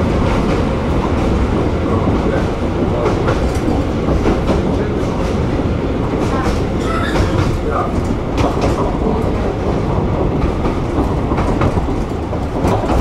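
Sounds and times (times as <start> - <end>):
rumble of train wheels on rail: 0.0 - 13.0
wheels clicking over rail joints: 0.2 - 13.0.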